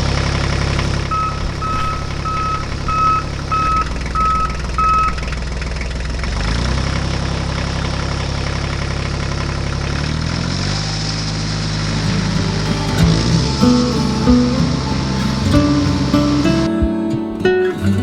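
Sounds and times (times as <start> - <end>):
reversing alarm beeping: 0.6 - 5.4, 11.9 - 16.7
vehicle engine running: 0.6 - 16.7.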